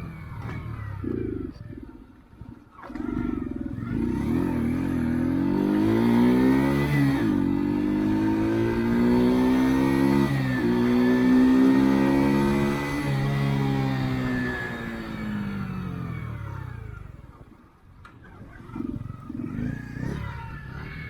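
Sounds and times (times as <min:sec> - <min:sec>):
small engine accelerating: 0:02.7 - 0:17.4, 0:18.2 - 0:21.0.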